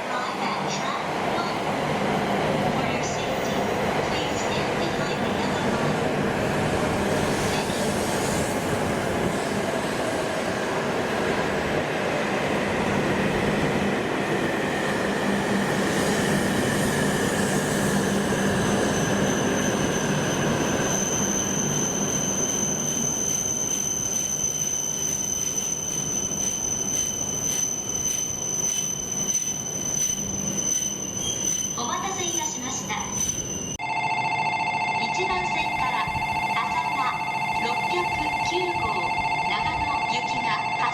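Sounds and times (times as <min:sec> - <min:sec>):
steady high-pitched tone: 0:18.6 - 0:40.9.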